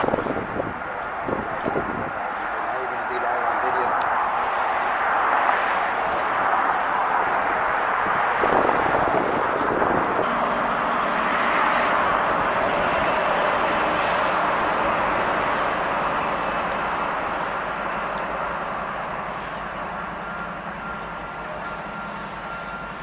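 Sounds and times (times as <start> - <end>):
passing vehicle rushing: 0.0 - 18.1.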